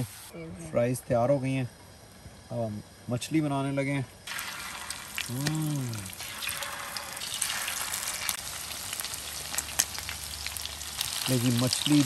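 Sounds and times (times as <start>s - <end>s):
fish frying in hot oil: 4.2s - 12.0s
person humming: 5.3s - 6.1s.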